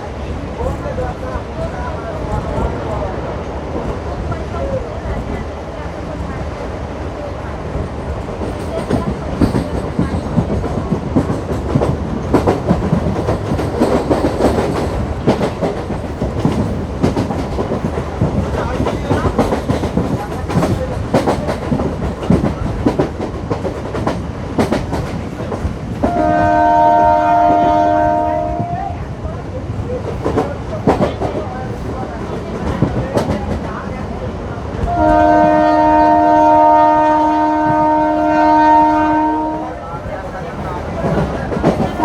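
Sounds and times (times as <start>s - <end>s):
train wheels clattering over rail joints: 8.0s - 26.5s
train horn blast: 26.1s - 29.0s, 34.8s - 39.8s.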